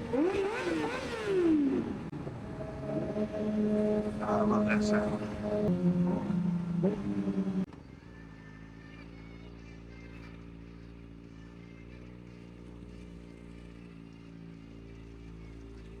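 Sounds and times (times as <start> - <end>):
louder engine note: 0.1 - 7.7
motorcycle engine idling: 2.1 - 16.0.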